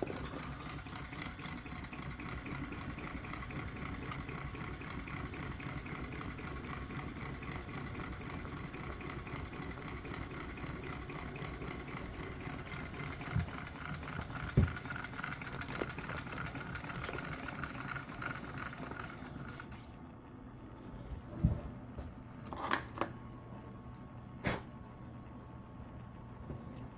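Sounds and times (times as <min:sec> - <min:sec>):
stirling engine running: 0:00.0 - 0:08.2.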